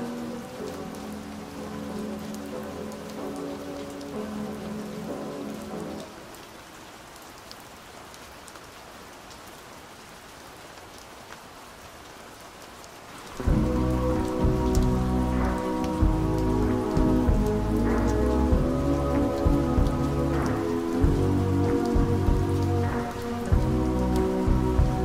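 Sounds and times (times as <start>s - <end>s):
rain falling: 0.0s - 25.0s
muffled song: 13.2s - 25.0s
muffled song with heavy bass: 13.4s - 25.0s.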